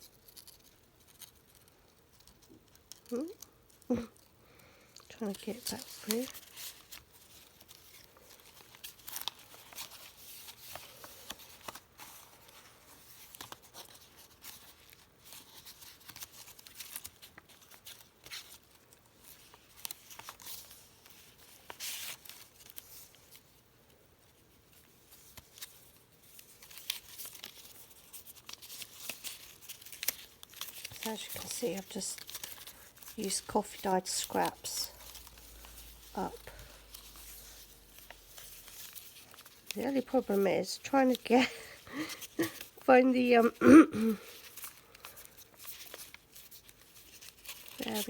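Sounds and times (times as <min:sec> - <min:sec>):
paper pages rustling and crinkling: 0:04.9 - 0:43.6, 0:44.2 - 0:48.0.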